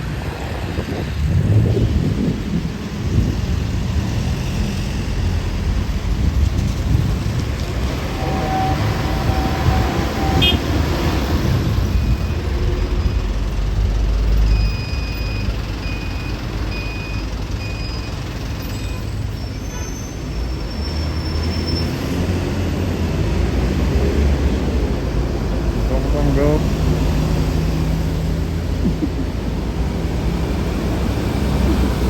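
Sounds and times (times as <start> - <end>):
heavy traffic rumble: 0.0 - 32.0
short electronic beeps: 11.9 - 19.1.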